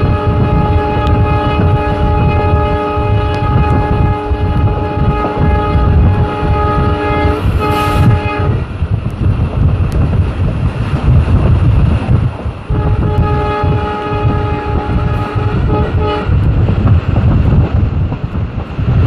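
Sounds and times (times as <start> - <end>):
locomotive horn: 0.0 - 8.7, 12.7 - 16.5
train passing with low rumble: 0.0 - 19.0.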